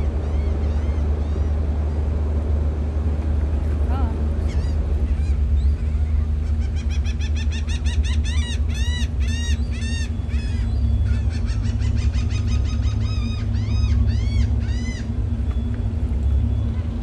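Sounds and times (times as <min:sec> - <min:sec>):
steady low drone: 0:00.0 - 0:17.0
bird calling in rapid notes: 0:04.4 - 0:15.8.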